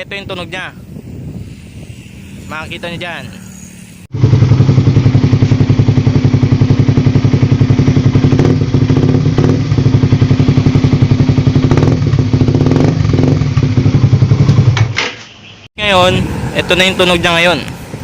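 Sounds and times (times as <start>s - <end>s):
motorcycle engine idling: 3.3s - 14.9s.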